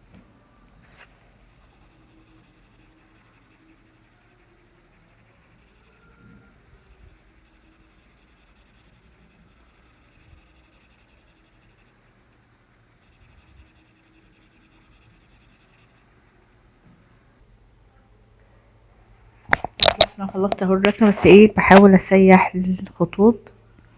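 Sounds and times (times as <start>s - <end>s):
pencil scratching paper: 0.8s - 16.2s.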